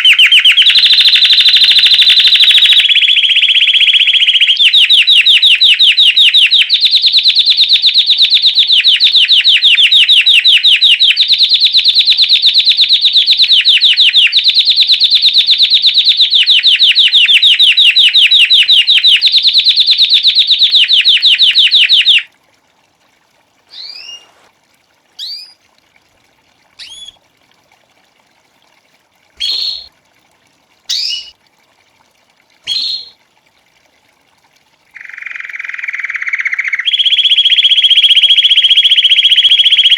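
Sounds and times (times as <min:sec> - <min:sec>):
canary singing rolling trill: 0:00.0 - 0:22.3, 0:23.7 - 0:24.5, 0:25.2 - 0:25.6, 0:26.8 - 0:27.2, 0:29.4 - 0:29.9, 0:30.9 - 0:31.3, 0:32.7 - 0:33.2, 0:35.0 - 0:39.9
short bird chirps: 0:23.7 - 0:24.5, 0:25.2 - 0:25.6, 0:26.8 - 0:27.2, 0:29.4 - 0:29.9, 0:30.9 - 0:31.3, 0:32.7 - 0:33.2.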